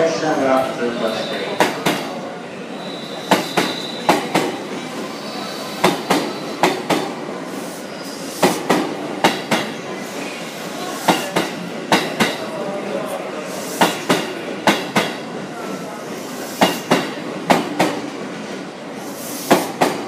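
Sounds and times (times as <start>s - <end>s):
train rolling rumble: 0.0s - 20.0s
high wheel squeal: 0.9s - 1.6s, 2.7s - 4.3s, 5.0s - 6.6s
train wheels clacking over rail joints: 8.4s - 9.7s, 11.1s - 12.4s, 13.8s - 15.2s, 19.4s - 20.0s.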